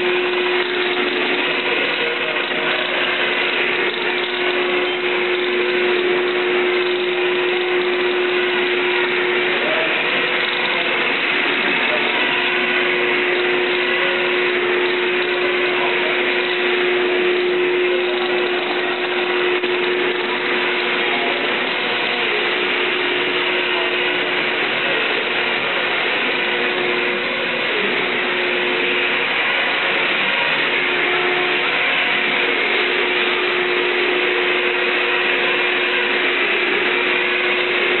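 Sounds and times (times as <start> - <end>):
machine whirring: 0.0 - 38.0
steady machine hum: 0.0 - 38.0.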